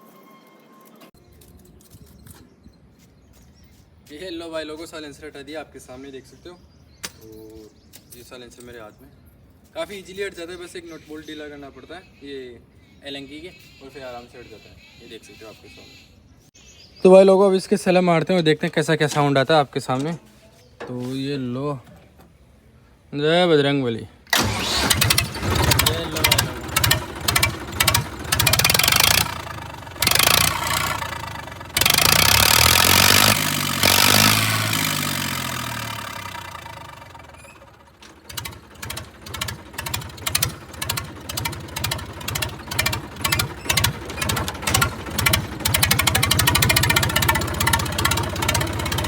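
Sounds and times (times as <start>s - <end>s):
loud diesel tractor engine: 24.3s - 49.0s.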